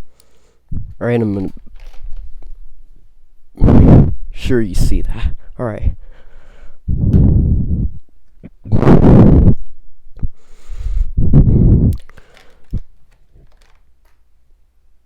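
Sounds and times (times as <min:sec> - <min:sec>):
microphone handling rumble: 0:00.7 - 0:02.6, 0:03.6 - 0:06.0, 0:06.9 - 0:12.1
plastic parts clicking: 0:01.5 - 0:02.5, 0:12.0 - 0:14.3.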